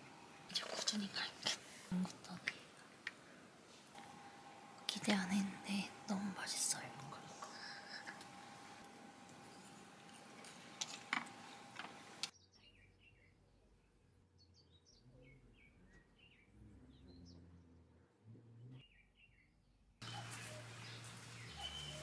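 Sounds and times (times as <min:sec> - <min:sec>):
steady hiss: 0:00.0 - 0:12.3
small birds chirping faintly: 0:00.0 - 0:22.0.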